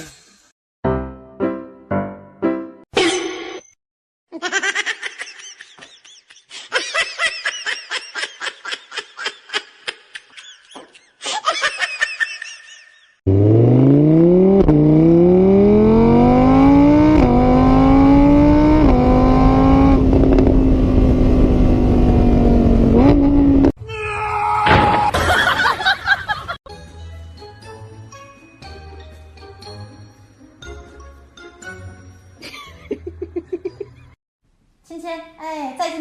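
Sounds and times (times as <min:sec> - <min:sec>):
laughter-like vocal sounds: 0:04.3 - 0:13.2, 0:25.1 - 0:26.6, 0:32.4 - 0:34.2
engine accelerating through gears: 0:13.3 - 0:23.7.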